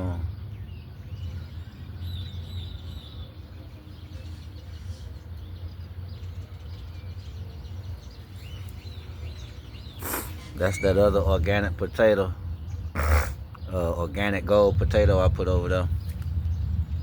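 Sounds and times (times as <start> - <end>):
birds chirping: 0.0 - 17.0
low outdoor rumble: 0.0 - 17.0.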